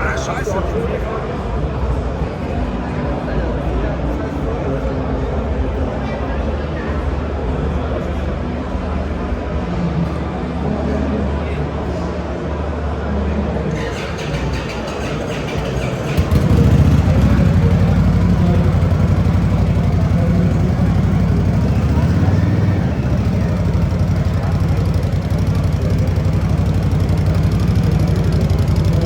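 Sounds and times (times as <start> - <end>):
motorcycle engine idling: 13.8 - 29.0.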